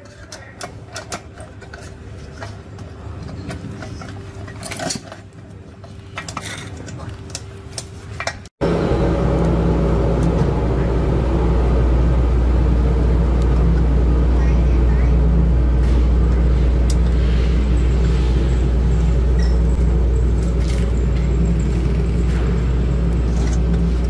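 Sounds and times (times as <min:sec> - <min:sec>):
low mechanical drone: 0:08.6 - 0:24.0.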